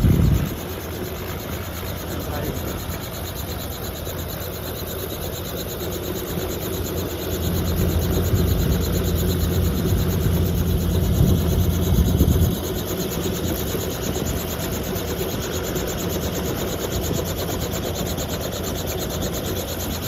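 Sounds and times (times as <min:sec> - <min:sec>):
heavy low rumble: 0:00.0 - 0:00.6, 0:07.4 - 0:12.6
helicopter running: 0:00.0 - 0:20.0.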